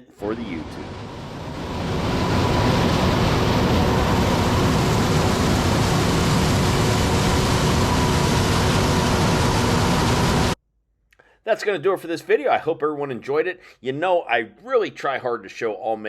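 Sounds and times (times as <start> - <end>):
machine running with high whine: 0.2 - 10.6.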